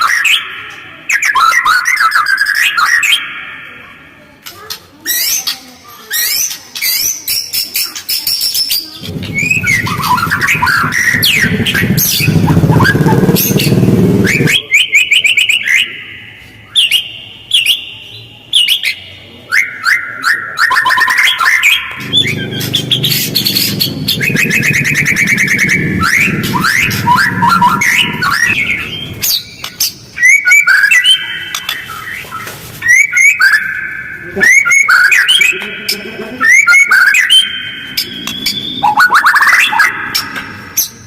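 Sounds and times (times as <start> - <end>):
bird singing rapid trills: 5.1 - 19.2, 20.6 - 32.3, 36.4 - 41.0.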